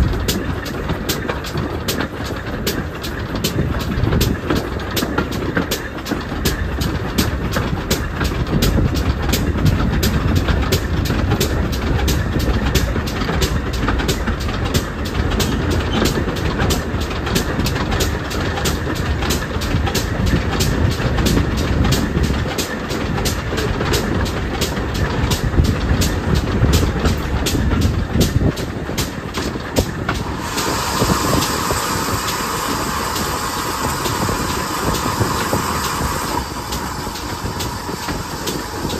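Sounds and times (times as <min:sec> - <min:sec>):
steam locomotive rumbling: 0:00.0 - 0:38.9
steam hissing: 0:29.0 - 0:38.9.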